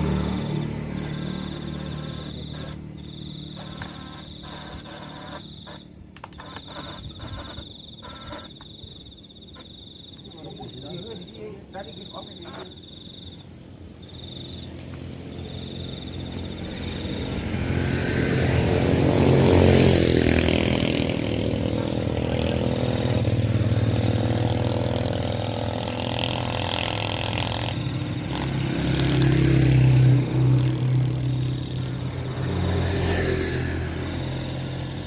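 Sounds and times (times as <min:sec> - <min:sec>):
vehicle engine passing: 0:00.0 - 0:05.8, 0:14.4 - 0:35.0
high insect-like trill: 0:00.0 - 0:35.0.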